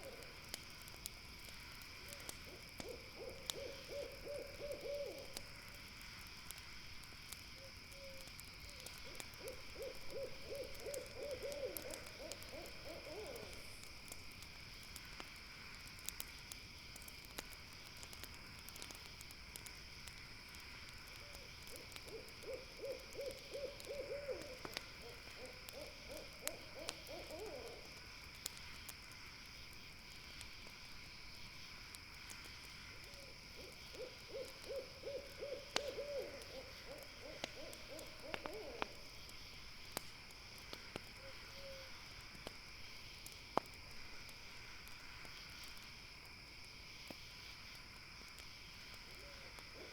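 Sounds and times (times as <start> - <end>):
campfire crackling: 0.0 - 49.9
night insects chirring: 0.0 - 49.9
owl hooting: 2.5 - 5.4, 9.4 - 13.6, 21.3 - 27.9, 33.6 - 39.0, 41.2 - 41.9, 49.2 - 49.9.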